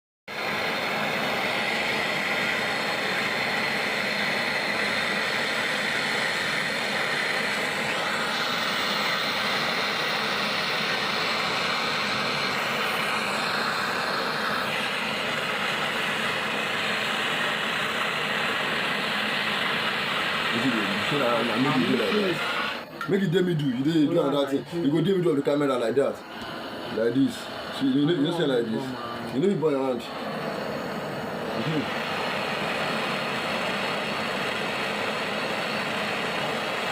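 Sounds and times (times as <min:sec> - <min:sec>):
gas torch flame hissing: 0:00.3 - 0:36.9.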